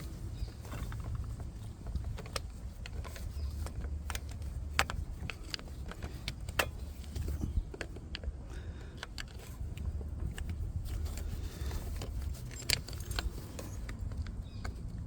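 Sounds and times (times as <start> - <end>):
metallic clicks and clinks: 10.3 - 15.0.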